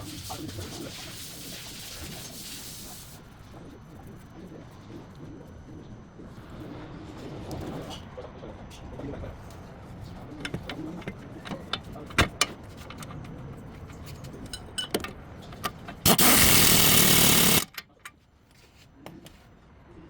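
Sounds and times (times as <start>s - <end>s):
tools clicking on metal: 12.9s - 18.2s
power tool burst: 16.1s - 17.8s.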